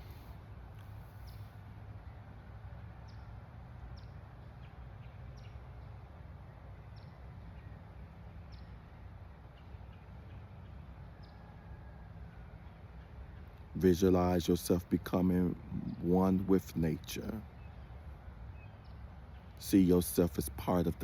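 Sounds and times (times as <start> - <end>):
steady low rumble: 0.0 - 1.3, 13.0 - 18.5
bird chirping: 3.0 - 11.7, 12.3 - 21.0.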